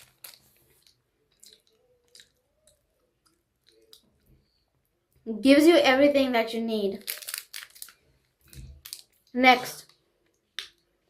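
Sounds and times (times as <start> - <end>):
faint chewing with soft crunches: 0.0 - 5.2, 7.0 - 10.9.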